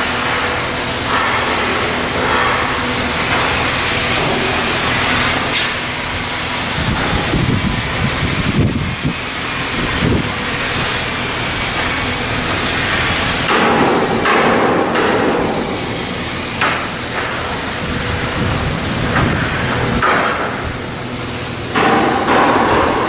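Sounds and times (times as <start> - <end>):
machinery noise: 0.0 - 23.0
metal being hammered: 13.4 - 17.6, 20.0 - 20.8, 21.7 - 23.0.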